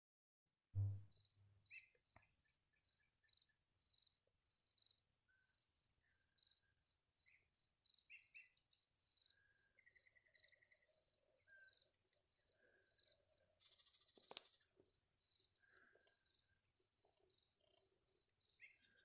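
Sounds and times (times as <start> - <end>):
brief trill: 0.8 - 1.0.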